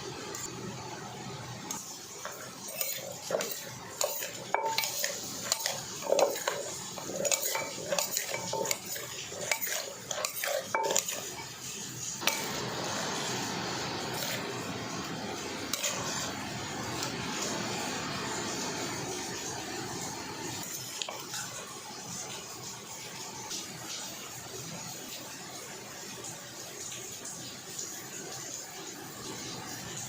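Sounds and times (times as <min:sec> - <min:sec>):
steady hissing noise: 0:00.0 - 0:30.0
utensils clinking on a dish: 0:01.7 - 0:12.6, 0:15.7 - 0:16.3.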